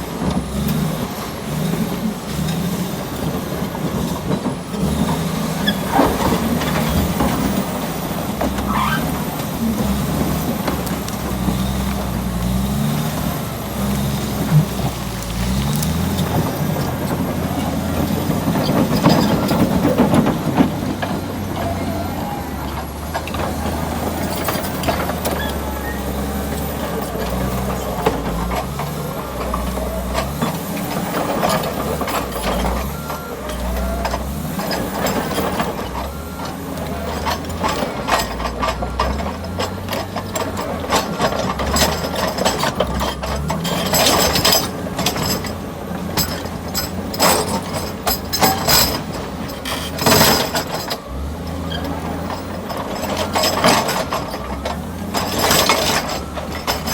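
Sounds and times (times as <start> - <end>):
bulldozer diesel engine working: 0.0 - 56.9
clanks of tracks and blade: 36.8 - 51.1.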